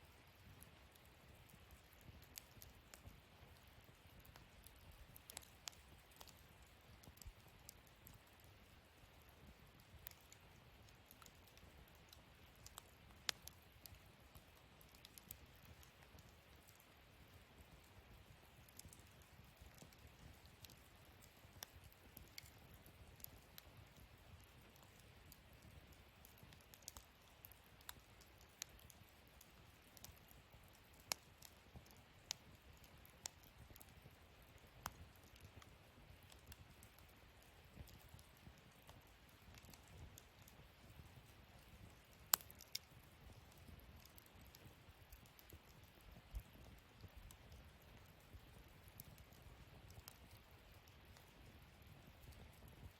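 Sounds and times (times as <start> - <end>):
wood fire crackling: 0.0 - 52.9
fire pops: 34.8 - 52.9.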